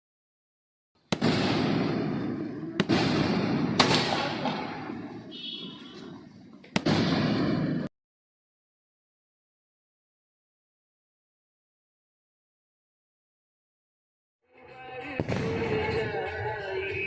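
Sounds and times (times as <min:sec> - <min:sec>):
fireworks crackling rumble: 0:01.0 - 0:07.9
fireworks bangs: 0:01.1 - 0:07.9.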